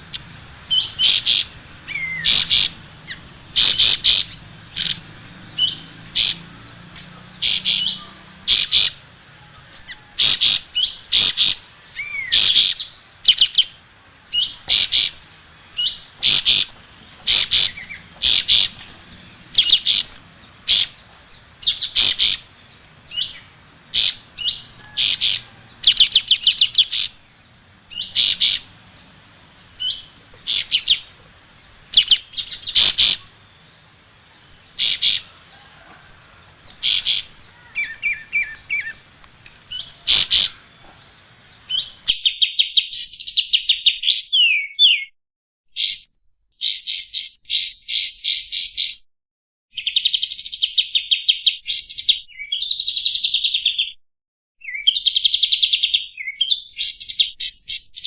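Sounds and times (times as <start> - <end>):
bulbul singing: 0.0 - 45.1, 45.7 - 49.0, 54.6 - 58.0.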